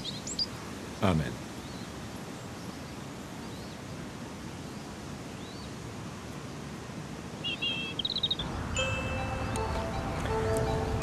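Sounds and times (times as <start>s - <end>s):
outdoor background noise: 0.0s - 11.0s
faint bird chirps: 7.4s - 8.6s
soft music with held notes: 8.7s - 11.0s.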